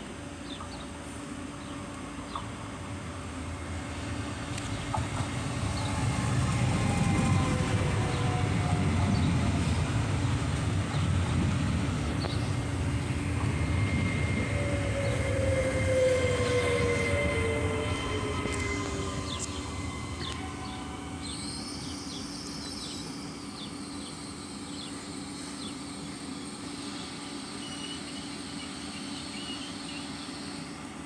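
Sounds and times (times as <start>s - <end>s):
train rumbling along rails: 0.0s - 31.0s.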